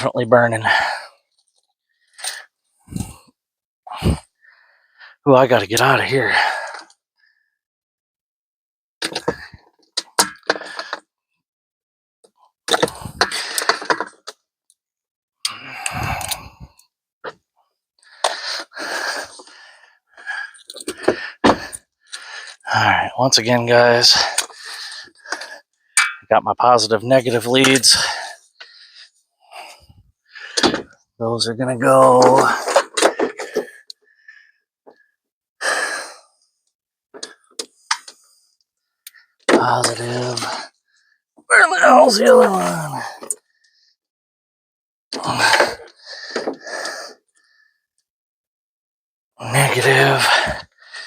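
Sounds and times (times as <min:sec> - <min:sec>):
man breathing heavily: 0:00.6 - 0:05.2, 0:15.4 - 0:16.8, 0:18.0 - 0:22.7, 0:24.3 - 0:25.9, 0:33.1 - 0:36.3, 0:45.3 - 0:47.8, 0:50.2 - 0:51.0
man breathing out heavily: 0:15.4 - 0:16.8, 0:50.2 - 0:51.0.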